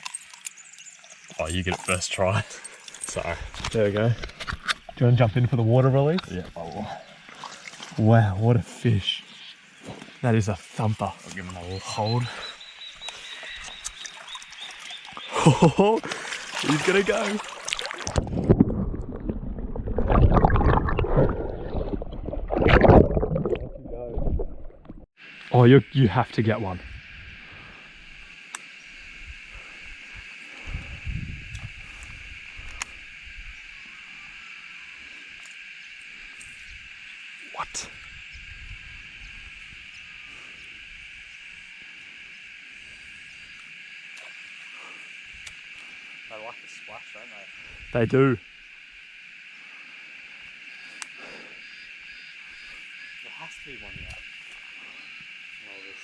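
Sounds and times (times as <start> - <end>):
insect chorus drone: 0.0 - 24.1, 25.2 - 56.0
water sloshing and splashing: 7.0 - 8.1, 13.0 - 25.1
knocks in water: 16.0 - 24.5.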